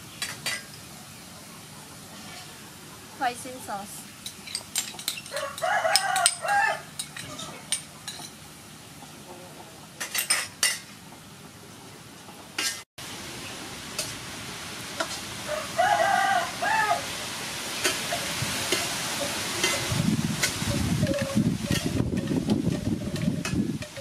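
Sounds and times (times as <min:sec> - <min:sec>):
rooster crowing: 0:05.3 - 0:07.6, 0:15.4 - 0:17.2
meat sizzling in a wok: 0:13.0 - 0:22.0
metal spatula stirring: 0:19.6 - 0:24.0.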